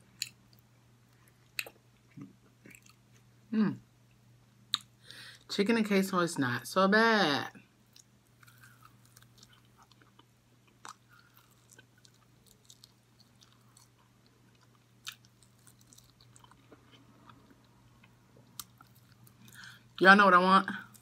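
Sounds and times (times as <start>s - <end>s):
person chewing and biting food: 0.0s - 3.3s, 7.9s - 19.9s.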